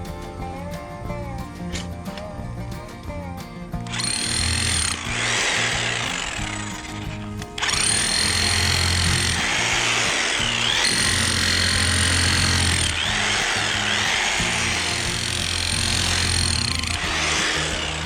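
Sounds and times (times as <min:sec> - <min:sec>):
background music: 0:00.0 - 0:18.0
demolition hammer digging soil: 0:03.8 - 0:18.0.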